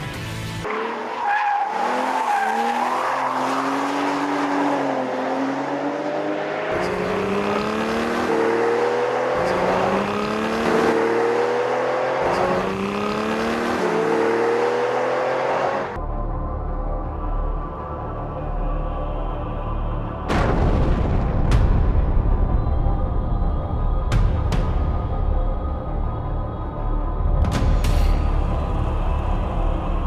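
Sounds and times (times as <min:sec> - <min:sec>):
car engine accelerating through gears: 0:00.6 - 0:16.0.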